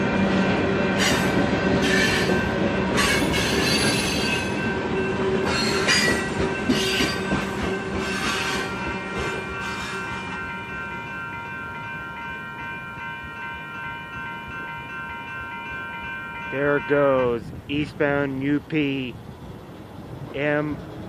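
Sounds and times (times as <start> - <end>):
freight cars rumbling: 0.0 - 11.4, 15.7 - 21.0
train wheels squealing on rails: 0.9 - 11.8, 18.4 - 21.0.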